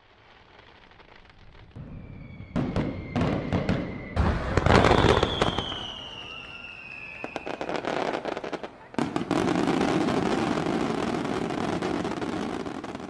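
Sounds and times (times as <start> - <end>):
fireworks bangs: 0.0 - 13.0
fireworks crackling: 0.0 - 13.0
fireworks whistle: 1.7 - 13.0.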